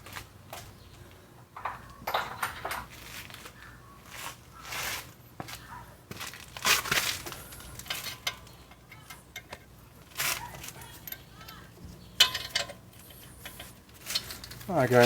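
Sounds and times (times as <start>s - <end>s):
metal tools clattering: 1.6s - 3.1s, 7.4s - 15.0s.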